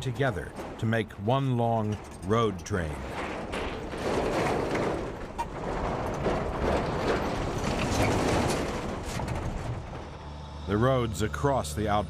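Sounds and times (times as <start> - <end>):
truck running noise: 0.0 - 12.0.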